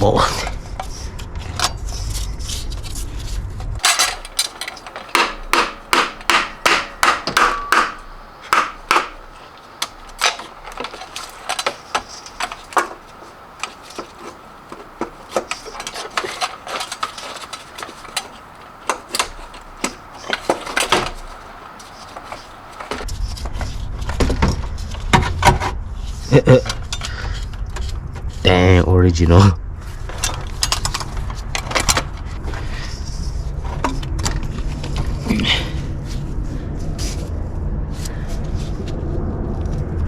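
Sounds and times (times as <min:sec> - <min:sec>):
hand tools knocking on metal: 0:03.8 - 0:23.0.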